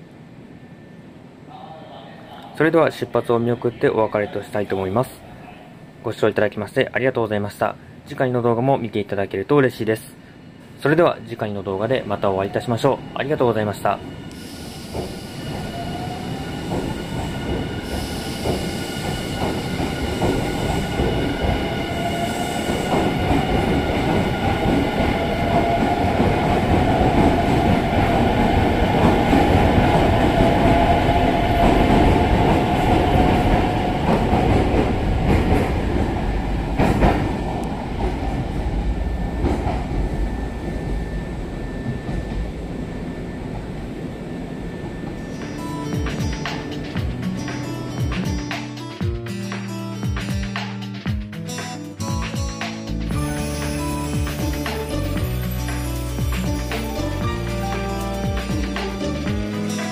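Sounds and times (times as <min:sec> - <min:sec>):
wheels rumbling over rails: 0:14.0 - 0:48.1.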